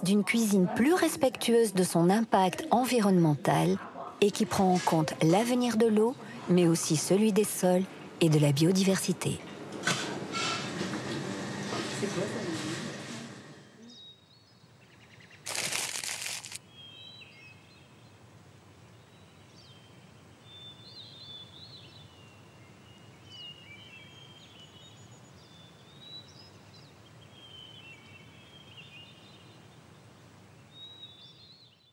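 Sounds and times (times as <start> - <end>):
faint background hiss: 16.6 - 31.9.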